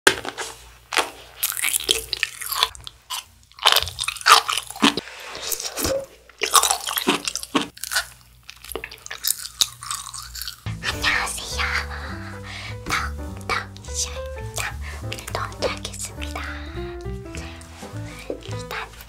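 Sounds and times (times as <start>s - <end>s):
person biting and chewing food: 1.3s - 10.7s.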